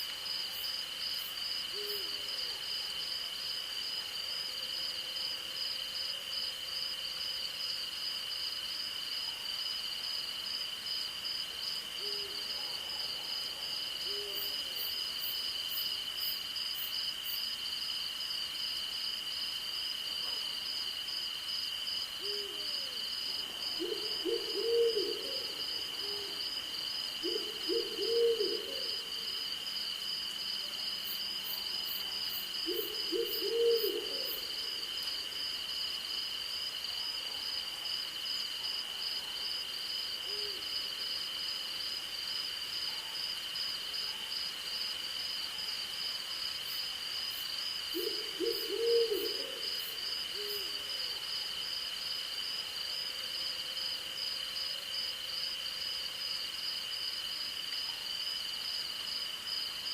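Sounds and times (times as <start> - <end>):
night insects calling: 0.0 - 59.9
owl hooting: 23.8 - 26.4, 27.2 - 28.9, 32.7 - 34.5, 48.0 - 49.7.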